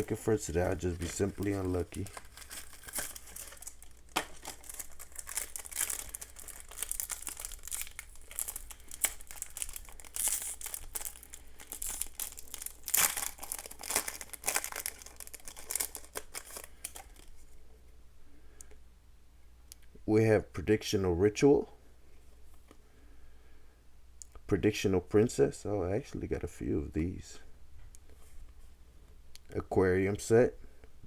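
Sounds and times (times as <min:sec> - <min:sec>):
cards shuffling: 0:00.0 - 0:17.3
foil pack crinkling and ripping: 0:00.0 - 0:17.3.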